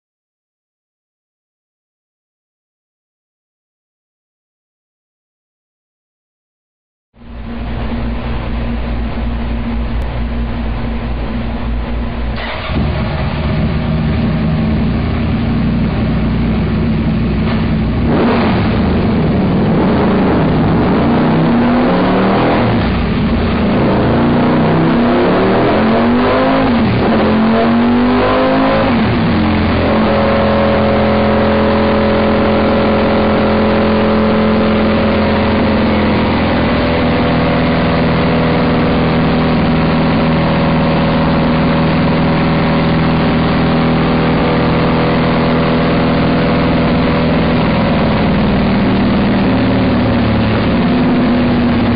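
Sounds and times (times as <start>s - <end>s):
motorcycle engine revving: 12.0s - 51.9s.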